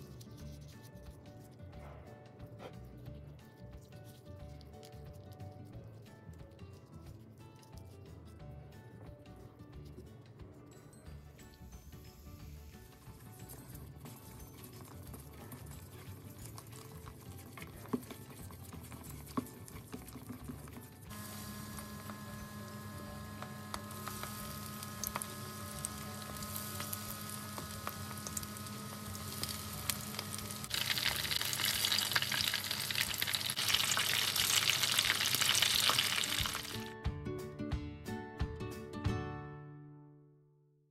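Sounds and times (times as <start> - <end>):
chopsticks stirring batter in bowl: 12.8 - 21.1, 24.0 - 36.8
steady hum: 21.1 - 30.7
food sizzling in hot oil: 21.1 - 36.9.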